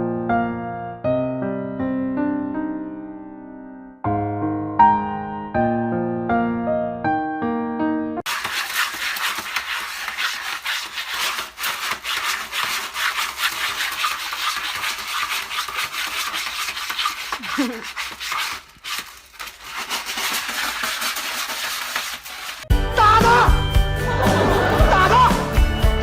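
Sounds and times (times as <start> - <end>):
rough scratching: 8.3 - 22.7.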